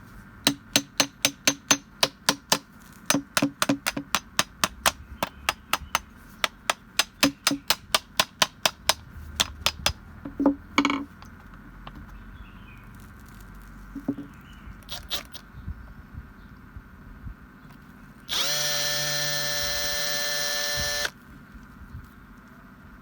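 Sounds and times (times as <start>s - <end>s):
tool knocks and clicks: 0.5s - 12.2s, 14.0s - 14.4s
small power tool motor: 14.9s - 15.4s, 18.3s - 21.2s.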